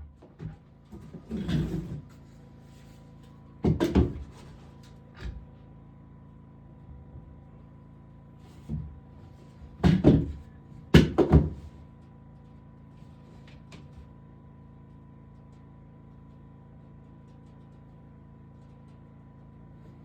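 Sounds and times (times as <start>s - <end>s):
wooden boards knocking: 9.8s - 10.4s, 11.0s - 11.6s.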